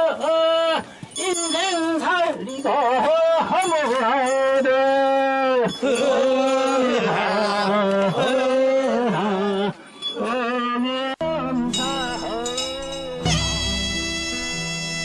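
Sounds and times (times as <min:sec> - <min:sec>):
person singing wavering notes: 0:11.2 - 0:15.0.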